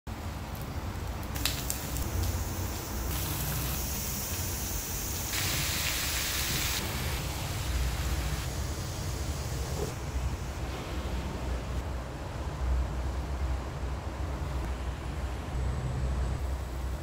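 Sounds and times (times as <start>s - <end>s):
food sizzling in a frying pan: 1.4s - 8.5s.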